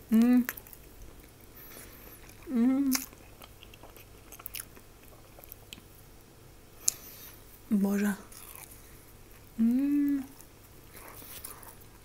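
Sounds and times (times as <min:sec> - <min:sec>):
person humming: 0:00.0 - 0:00.6, 0:02.4 - 0:03.0, 0:09.6 - 0:10.4
person chewing food: 0:00.0 - 0:06.0, 0:06.8 - 0:07.5, 0:08.3 - 0:12.0.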